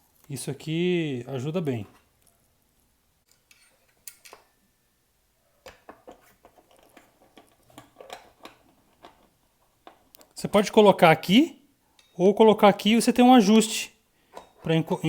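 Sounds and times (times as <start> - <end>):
handling clicks and rustles: 5.6 - 10.4.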